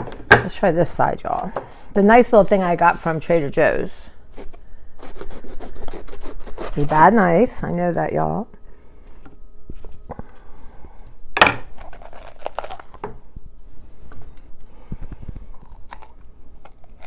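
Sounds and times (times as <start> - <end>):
crinkling: 11.6 - 17.0.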